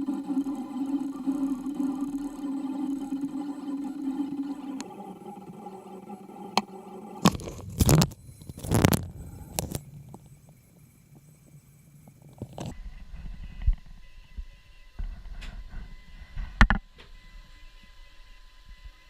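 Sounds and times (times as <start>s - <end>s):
loud scraping: 0.0s - 10.2s
stepper motors whining: 0.0s - 19.0s.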